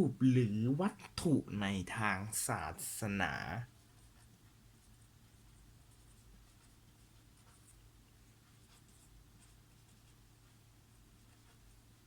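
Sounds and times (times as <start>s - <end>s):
steady low hum: 0.0s - 12.0s
pen scratching on paper: 3.8s - 12.0s.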